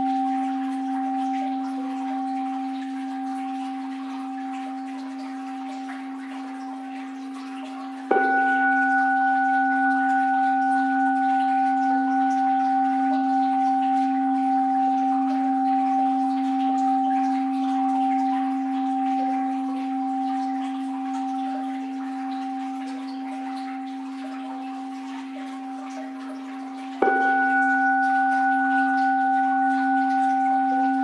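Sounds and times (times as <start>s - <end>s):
bowl bell ringing: 0.0s - 31.0s
faint flowing water: 0.0s - 31.0s.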